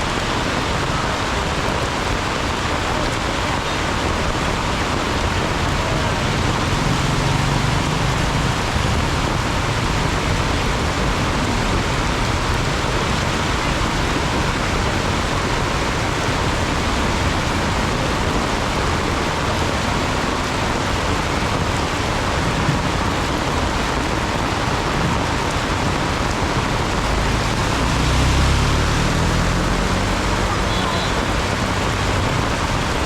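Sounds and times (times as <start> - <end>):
heavy rain hissing: 0.0 - 33.0
vehicle passing: 5.7 - 14.4, 26.9 - 32.9.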